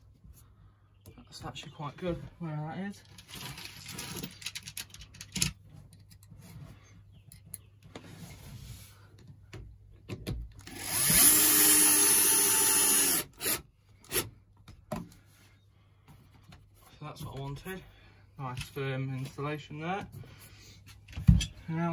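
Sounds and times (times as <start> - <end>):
power drill driving a screw: 10.6 - 14.3.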